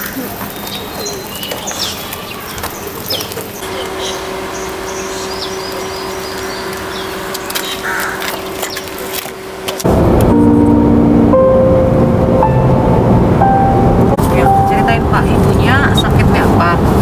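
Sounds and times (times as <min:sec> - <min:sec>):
birds chirping: 0:00.0 - 0:09.0
steady hum: 0:09.8 - 0:17.0
background music: 0:09.9 - 0:16.0.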